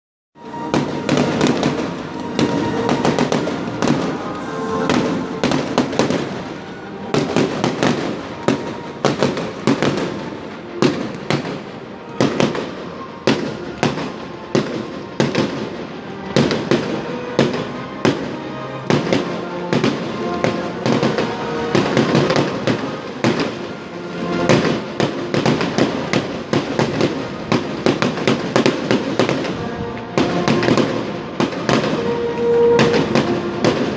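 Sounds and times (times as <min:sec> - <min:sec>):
fireworks bangs and crackling: 0:00.4 - 0:33.9
music playing: 0:00.4 - 0:33.9.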